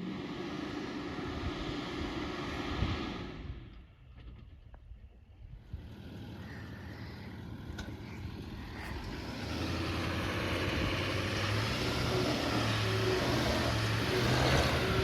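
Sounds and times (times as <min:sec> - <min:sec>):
road and tyre noise: 0:00.0 - 0:15.0
pickup truck engine running: 0:05.5 - 0:15.0.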